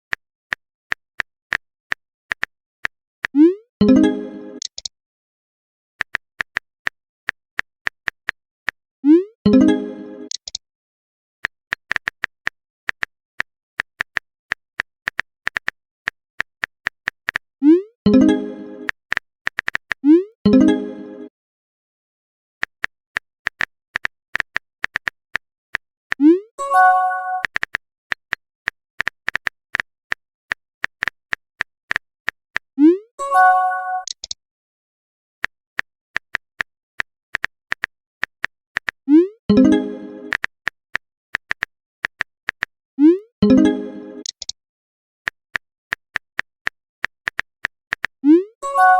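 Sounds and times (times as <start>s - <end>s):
phone keyboard typing clicks: 4.6s - 4.9s, 9.6s - 10.6s, 26.1s - 28.4s, 33.9s - 34.4s, 41.4s - 42.7s, 43.4s - 44.6s, 45.5s - 48.9s.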